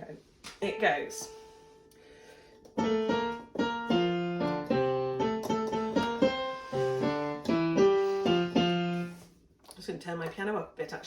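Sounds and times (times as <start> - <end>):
bouncy piano chords: 2.6 - 9.3.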